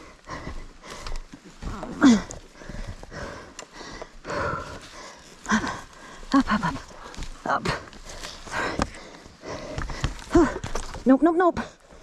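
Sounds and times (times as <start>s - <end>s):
person panting heavily: 0.0s - 10.8s.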